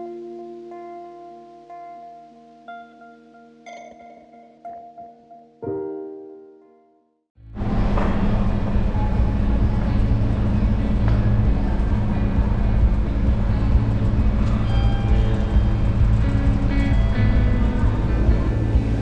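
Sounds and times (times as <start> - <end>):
vehicle rumbling in motion: 7.4 - 19.0
quiet background music: 7.6 - 19.0.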